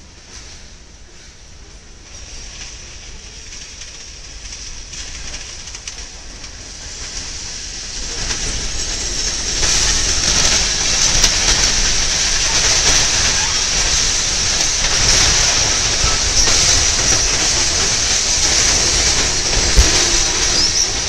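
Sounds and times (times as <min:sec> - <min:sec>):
freight train rolling: 0:00.0 - 0:21.0
derailed car grinding along track: 0:03.0 - 0:21.0
train wheel screech: 0:06.7 - 0:21.0.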